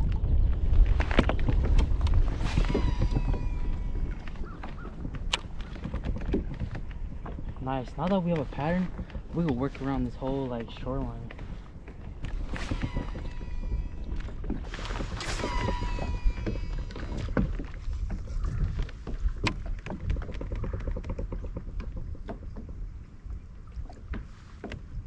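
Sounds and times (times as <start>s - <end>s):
wind and water rumble: 0.0s - 25.0s
whine falling in pitch: 2.4s - 4.6s, 12.5s - 17.4s
gear knocking against hull: 10.7s - 22.9s.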